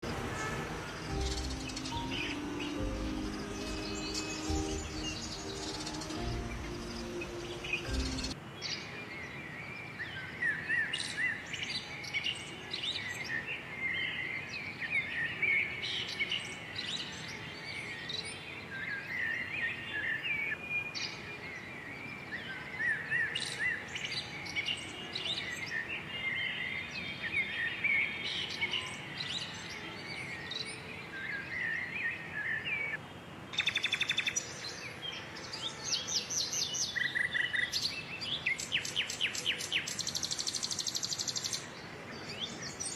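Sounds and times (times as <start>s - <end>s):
buzzy bird trill: 0.0s - 8.4s
birds chirping and twittering: 0.0s - 42.9s.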